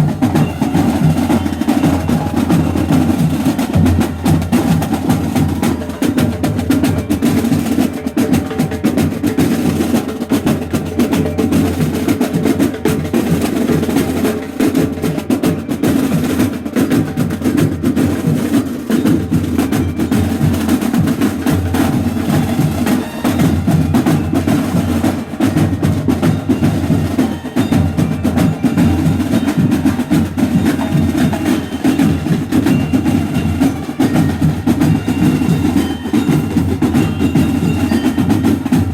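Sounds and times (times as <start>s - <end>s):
drum corps playing: 0.0s - 38.9s.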